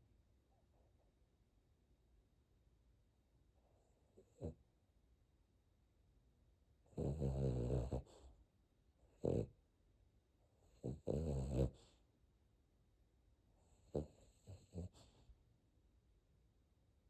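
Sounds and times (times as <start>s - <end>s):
puppy snoring: 3.9s - 4.7s, 6.9s - 8.4s, 9.0s - 9.6s, 10.6s - 12.0s, 13.6s - 15.3s.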